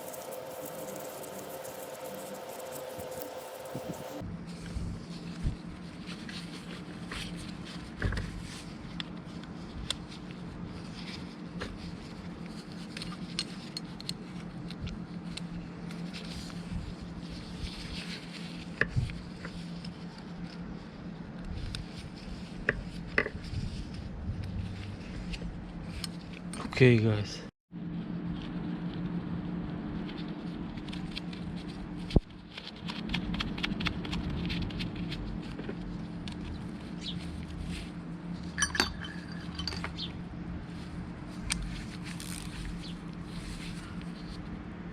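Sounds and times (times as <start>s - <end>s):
steady low hum: 0.0s - 44.9s
metal clinks knocks and scrapes: 38.5s - 40.1s.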